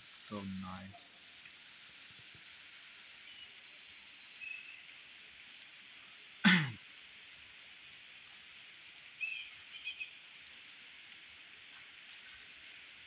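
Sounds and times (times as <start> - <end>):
rain falling on a pond: 0.0 - 13.0
bird chirps: 3.2 - 4.9, 9.2 - 10.2.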